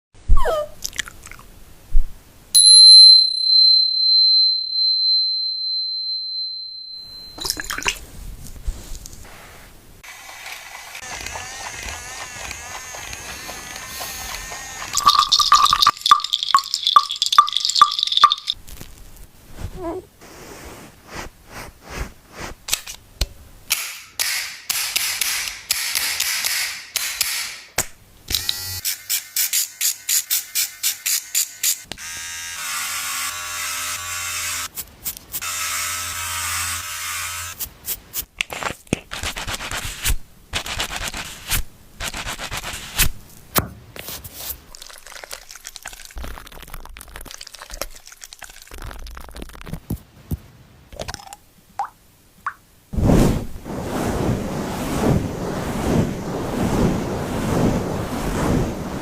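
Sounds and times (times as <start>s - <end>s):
small bell ringing: 2.6s - 7.6s.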